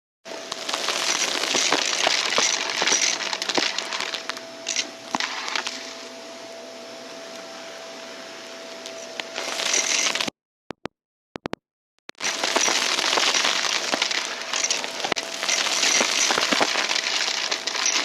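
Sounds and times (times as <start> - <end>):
debris crackling being sucked up: 0.3 - 4.4, 5.1 - 6.1, 12.2 - 18.0
vacuum cleaner motor whine: 0.3 - 10.3, 12.2 - 18.0.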